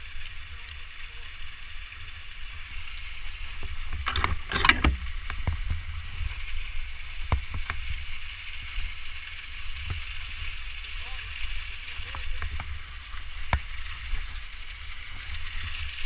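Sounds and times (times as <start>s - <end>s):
sharp clicks and rattles: 3.9s - 5.5s.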